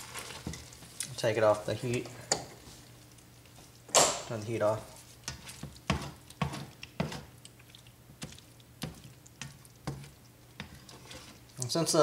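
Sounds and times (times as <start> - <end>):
thick sauce bubbling and popping: 2.8 - 11.8.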